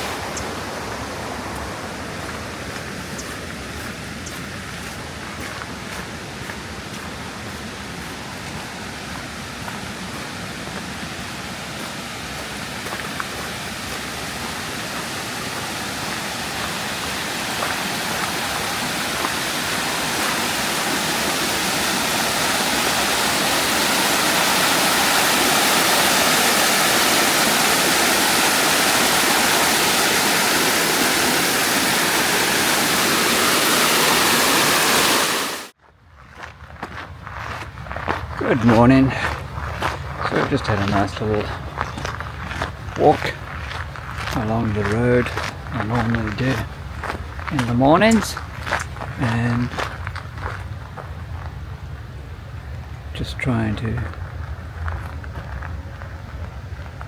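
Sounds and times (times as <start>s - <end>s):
rushing water: 0.0s - 35.8s.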